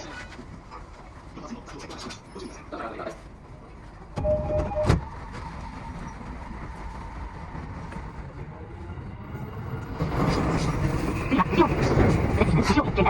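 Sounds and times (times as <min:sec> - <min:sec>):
electric train rumble: 0:00.0 - 0:13.0
two-tone beep: 0:04.2 - 0:05.0.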